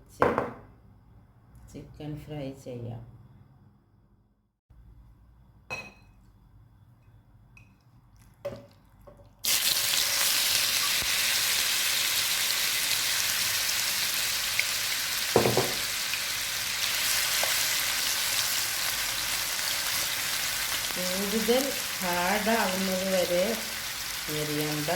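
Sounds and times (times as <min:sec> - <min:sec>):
chicken sizzling in hot oil: 0:09.4 - 0:24.9
utensil knock: 0:15.3 - 0:15.8.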